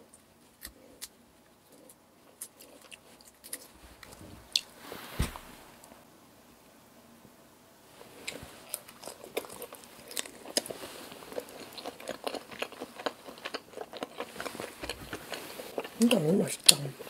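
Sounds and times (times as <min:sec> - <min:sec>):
chewing and biting shrimp: 0:08.2 - 0:16.8.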